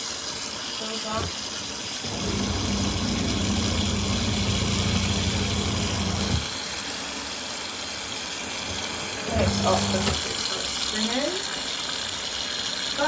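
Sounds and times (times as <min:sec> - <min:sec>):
washing machine motor humming: 0:01.0 - 0:06.6, 0:08.6 - 0:10.7.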